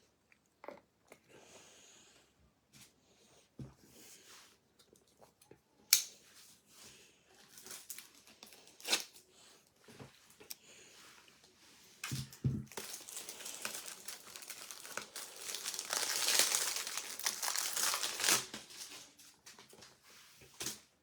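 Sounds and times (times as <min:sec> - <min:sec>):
packaging crinkling: 0:07.4 - 0:09.2, 0:12.1 - 0:19.3.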